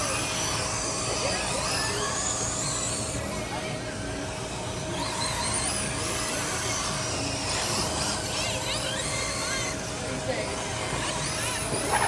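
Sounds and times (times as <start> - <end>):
electric motors whining: 0.0 - 12.0
steady hum: 9.8 - 12.0.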